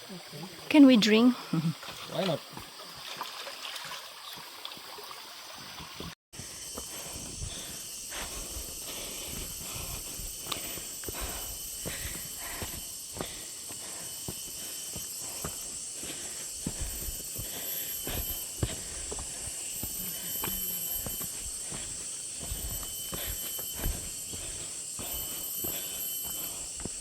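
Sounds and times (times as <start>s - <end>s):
high insect drone: 0.0s - 27.0s
footsteps on a trail: 5.7s - 27.0s.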